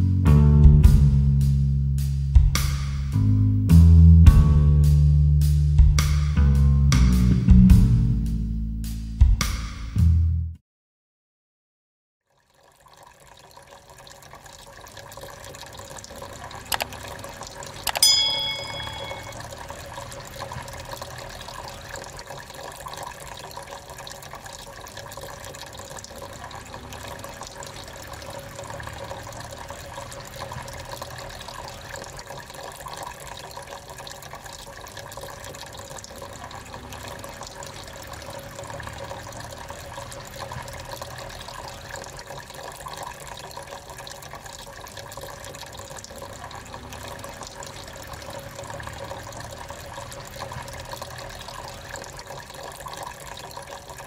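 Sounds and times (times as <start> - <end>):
tabletop fountain trickling: 12.2 - 54.0.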